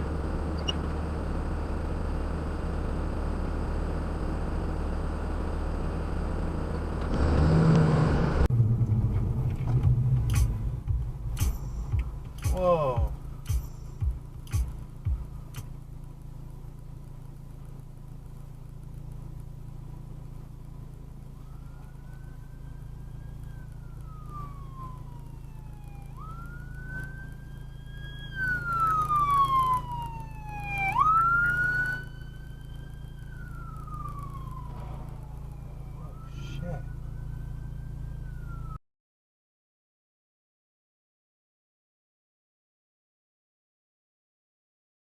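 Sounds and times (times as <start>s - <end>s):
car engine drone: 0.0s - 38.8s
road noise: 0.0s - 38.8s
emergency vehicle siren wailing: 21.1s - 38.8s.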